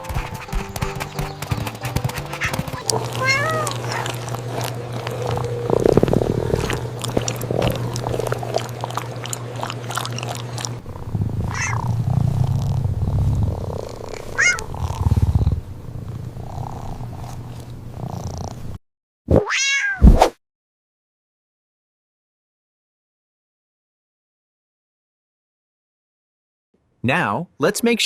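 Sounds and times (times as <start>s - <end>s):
cat purring: 0.0s - 18.8s
cat meowing: 2.4s - 4.7s, 11.5s - 11.8s, 14.3s - 14.7s, 19.4s - 20.0s.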